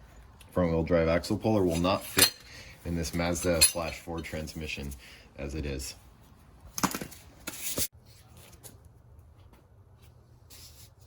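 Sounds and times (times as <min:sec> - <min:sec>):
metal tools rubbing and knocking: 0:01.7 - 0:04.4.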